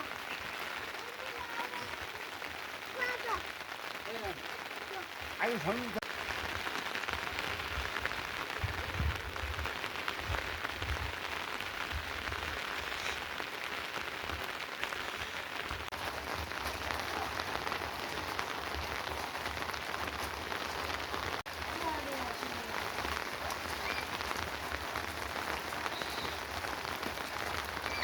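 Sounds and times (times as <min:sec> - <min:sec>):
rain pattering: 0:00.0 - 0:28.0.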